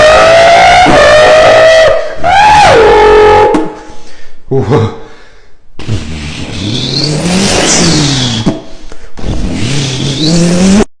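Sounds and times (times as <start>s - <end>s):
car engine revving: 5.8s - 8.5s, 9.2s - 10.9s.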